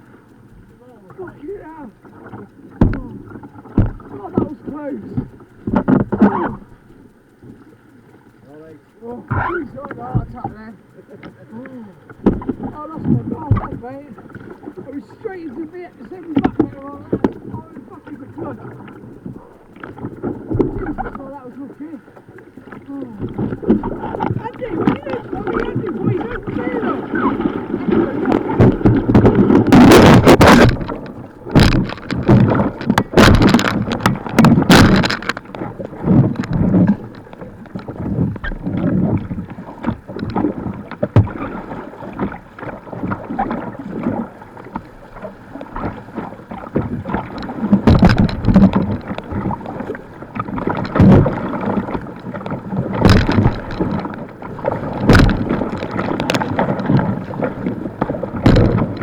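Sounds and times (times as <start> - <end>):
rushing water: 0.0 - 59.0
loud splashes: 24.0 - 37.1.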